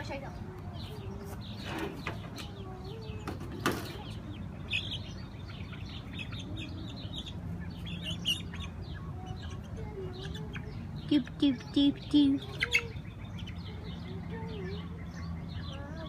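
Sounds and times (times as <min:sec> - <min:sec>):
chickens clucking: 0:00.0 - 0:16.0
rapid high-pitched peeping: 0:03.9 - 0:16.0.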